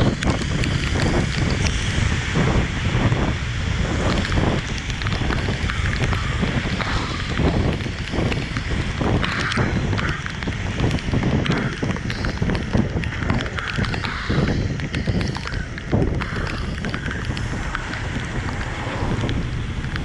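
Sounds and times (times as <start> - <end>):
raindrop clicks: 0.0 - 20.0
steady rain: 0.0 - 20.0
wind buffeting microphone: 0.0 - 20.0.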